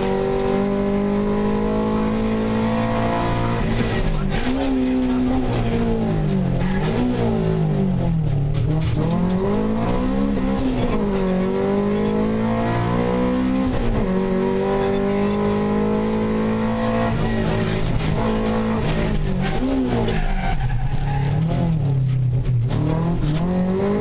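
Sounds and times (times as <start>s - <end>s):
car engine at high revs: 0.0s - 24.0s.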